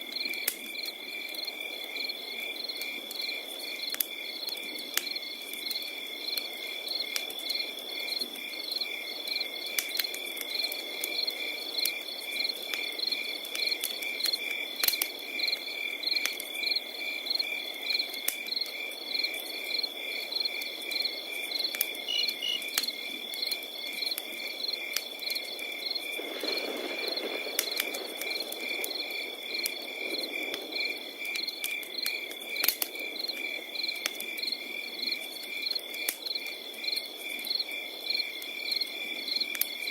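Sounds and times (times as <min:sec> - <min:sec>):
cricket steady trill: 0:00.0 - 0:39.9
wood fire crackling and popping: 0:00.0 - 0:39.9
crickets chirping in pulses: 0:00.2 - 0:39.8.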